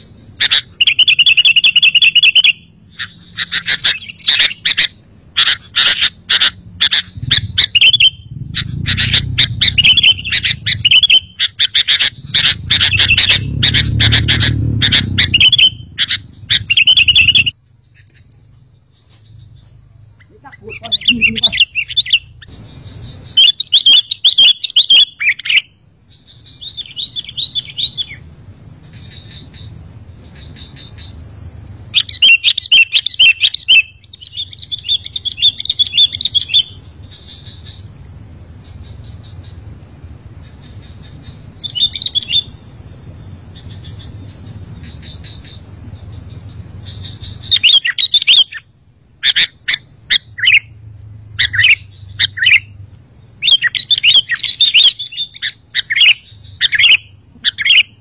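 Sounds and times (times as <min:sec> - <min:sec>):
bird chirping song: 0:00.0 - 0:58.0
low hum: 0:06.1 - 0:23.4.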